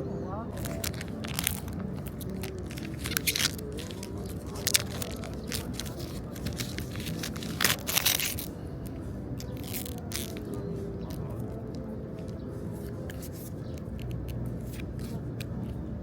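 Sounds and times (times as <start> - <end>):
packaging crinkling and tearing: 0.6 - 8.5, 9.4 - 11.8
sharp crackles: 0.6 - 8.5.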